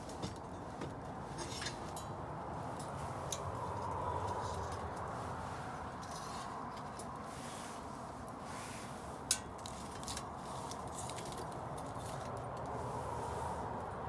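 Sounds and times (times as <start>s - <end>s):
wood bonfire hissing and crackling: 5.0s - 14.0s.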